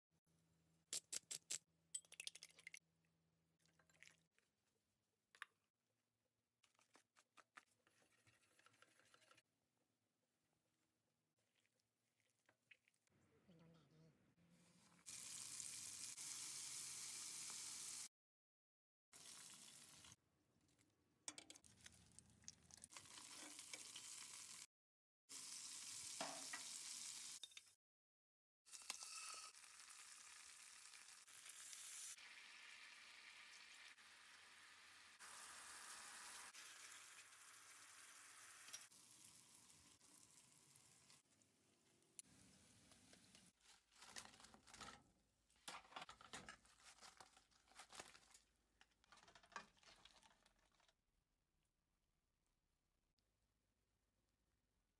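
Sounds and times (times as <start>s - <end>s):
chicken frying in hot oil: 15.0s - 18.1s, 19.2s - 20.2s, 21.6s - 24.7s, 25.3s - 27.4s, 28.7s - 43.9s.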